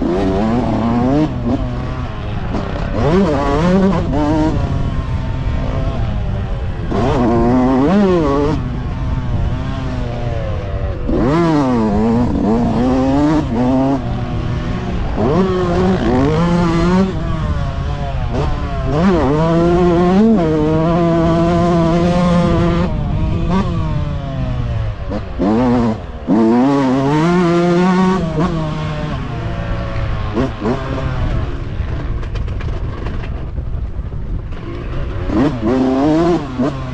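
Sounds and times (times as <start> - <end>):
motocross bike engines revving: 0.0 - 36.9.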